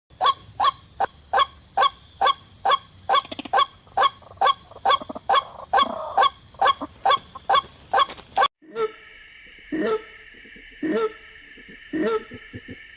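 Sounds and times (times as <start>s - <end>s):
bird honking calls: 0.2s - 8.5s.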